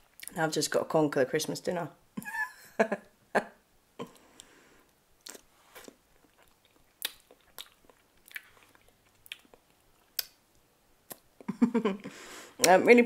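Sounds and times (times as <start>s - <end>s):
person chewing food: 5.2s - 11.6s.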